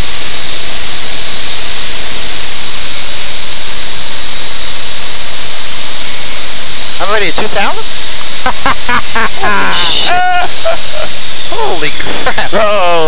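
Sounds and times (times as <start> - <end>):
steady high whine: 0.0 - 13.0
aircraft engine and propeller rush: 6.4 - 13.0.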